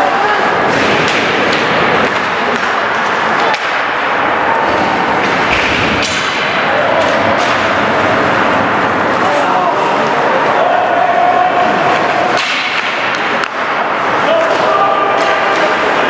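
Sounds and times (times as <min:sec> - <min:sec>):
hockey sticks and puck clacking: 0:00.0 - 0:09.7, 0:11.5 - 0:16.0
spectator voices: 0:08.8 - 0:12.4.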